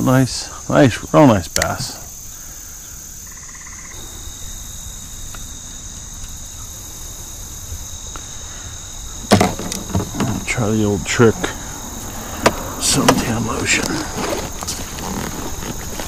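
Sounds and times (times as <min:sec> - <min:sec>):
crickets high-pitched shrill: 0:00.0 - 0:16.0
insects lower-pitched trill: 0:00.0 - 0:16.0
low rumble: 0:04.0 - 0:09.0.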